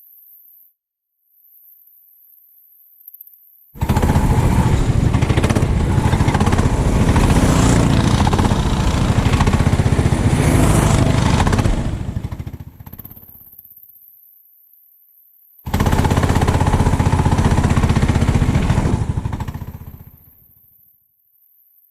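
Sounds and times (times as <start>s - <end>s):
kart engine running hard: 3.8s - 13.1s, 15.7s - 20.2s.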